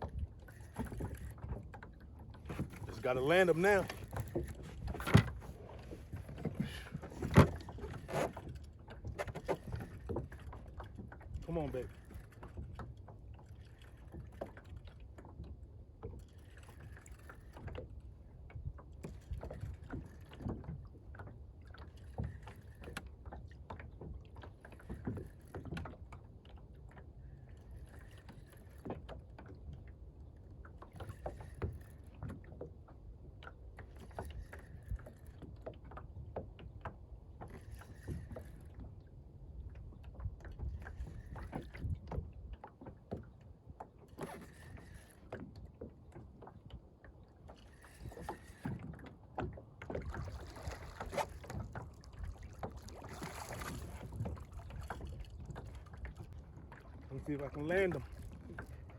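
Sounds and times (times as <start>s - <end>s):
reel and tackle clicks: 0.0s - 15.5s, 33.4s - 39.0s, 39.8s - 43.2s, 44.0s - 46.8s, 47.4s - 58.9s
wind and water against hull: 0.0s - 58.9s.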